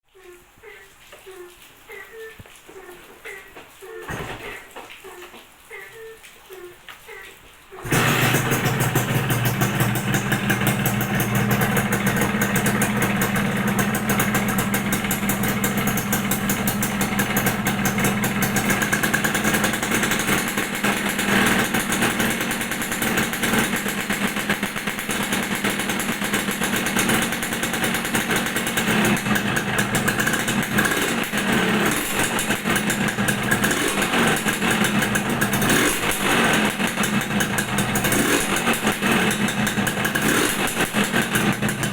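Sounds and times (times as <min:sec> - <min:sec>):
two-stroke motorcycle engine running: 0:07.8 - 0:41.9.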